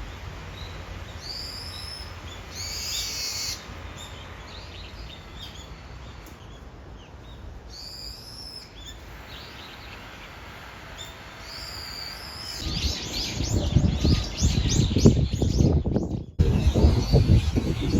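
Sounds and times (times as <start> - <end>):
high whistled bird calls: 0.5 - 6.6, 7.2 - 17.9
high bird chirps: 0.6 - 6.6, 11.0 - 17.9
loud low rumbling: 12.6 - 17.9.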